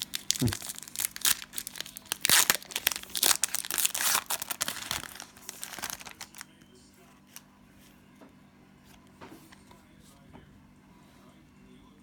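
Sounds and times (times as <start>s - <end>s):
cards clicking and rustling: 0.0s - 6.4s
cellophane wrapper crinkling and tearing: 0.0s - 6.5s.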